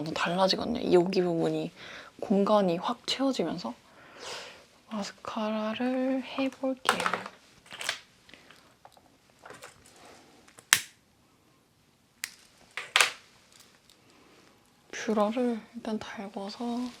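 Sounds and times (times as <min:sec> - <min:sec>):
makeup tools clicking: 0:12.2 - 0:13.2
faint rustling: 0:16.4 - 0:17.0.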